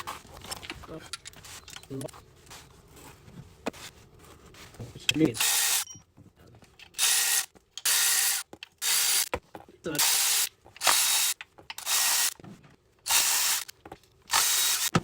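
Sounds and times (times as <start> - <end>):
ratchet wrench ratcheting: 5.4 - 5.9, 6.9 - 9.3, 10.0 - 12.4, 13.1 - 13.7, 14.3 - 15.0.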